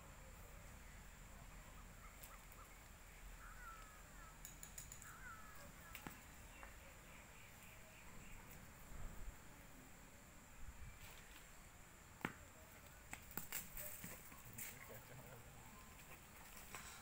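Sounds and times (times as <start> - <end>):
faint bird chirps: 0.1 - 9.8.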